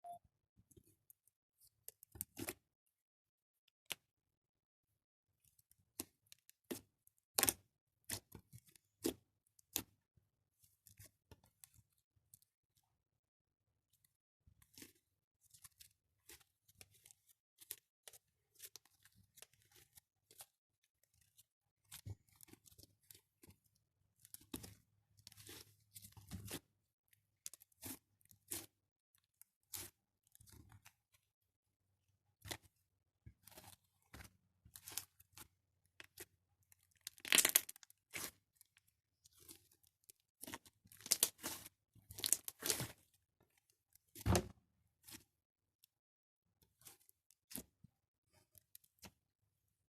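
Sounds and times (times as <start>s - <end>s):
slime crackling and popping: 36.9s - 38.3s, 40.4s - 41.6s.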